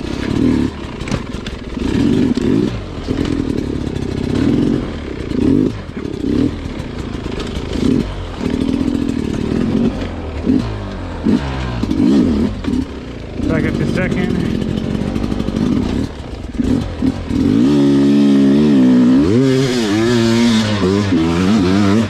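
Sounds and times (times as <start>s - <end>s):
dirt bike engine revving: 0.0s - 22.0s
bike clattering: 11.8s - 17.6s.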